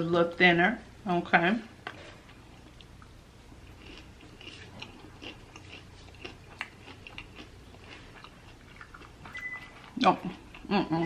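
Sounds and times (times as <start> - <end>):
chewing crunchy chicken: 1.9 - 10.7.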